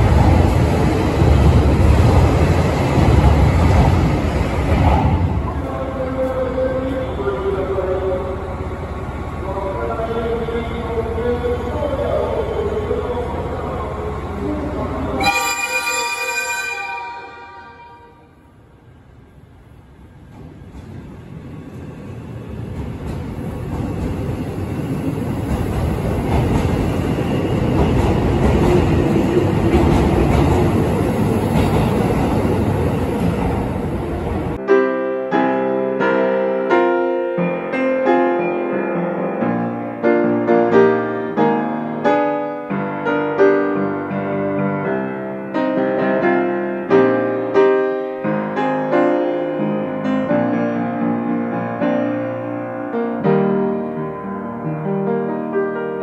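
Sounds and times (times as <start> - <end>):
train rumble: 0.0 - 16.5, 18.1 - 34.6
solo piano music: 34.6 - 56.0.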